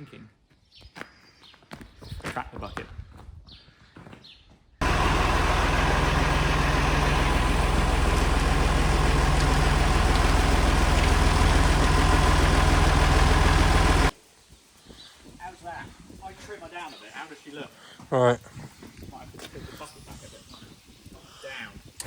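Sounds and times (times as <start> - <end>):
loader engine idling: 4.8 - 14.1.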